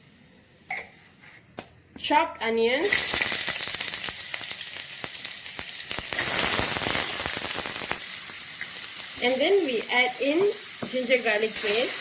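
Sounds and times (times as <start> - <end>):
onion sizzling in hot oil: 2.8 - 12.0.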